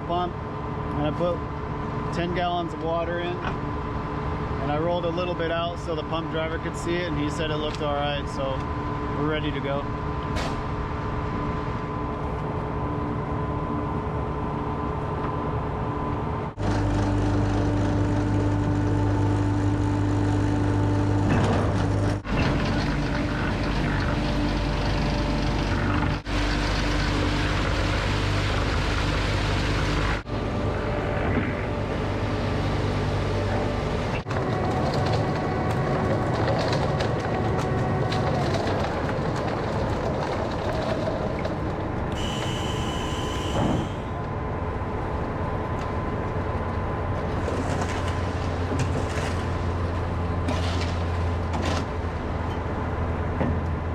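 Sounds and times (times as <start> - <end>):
diesel engines running: 0.0 - 53.9
concrete discharging into pump: 26.2 - 30.2.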